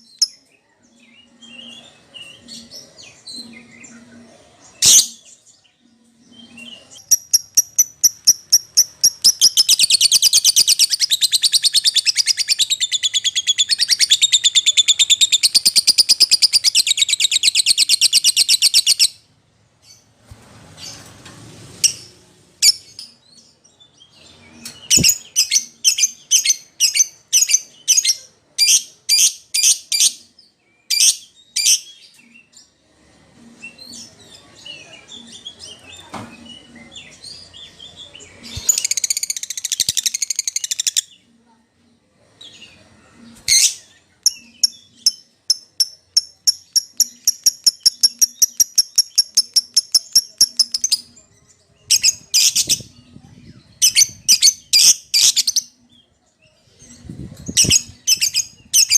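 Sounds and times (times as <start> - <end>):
lovebird chirping and chattering: 6.4 - 19.2, 24.5 - 30.3, 38.3 - 41.2, 43.4 - 55.8, 56.8 - 58.9.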